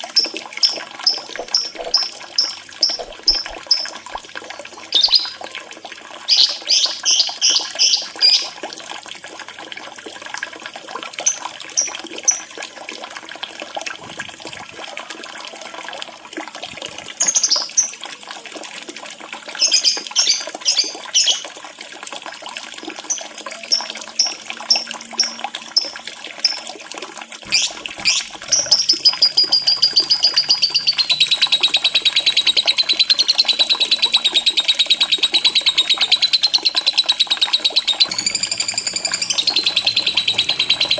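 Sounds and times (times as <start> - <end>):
trickling water: 0.0 - 40.9
lovebird chirping and trilling: 0.6 - 4.0, 4.9 - 5.4, 6.3 - 8.5, 27.5 - 40.9.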